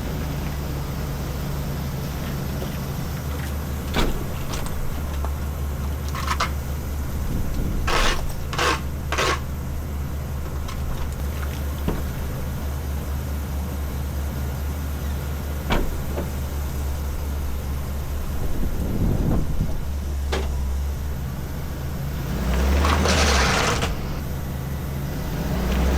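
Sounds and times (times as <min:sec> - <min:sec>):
ambulance engine idling: 0:00.0 - 0:25.9
short knocks or clunks: 0:15.6 - 0:17.2.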